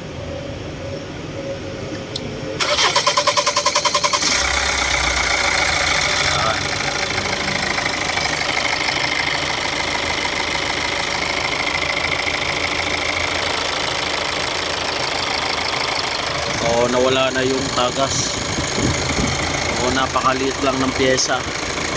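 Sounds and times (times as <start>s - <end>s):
diesel engine starting and idling: 2.1s - 21.9s
starter motor cranking: 2.6s - 12.7s, 16.2s - 21.9s.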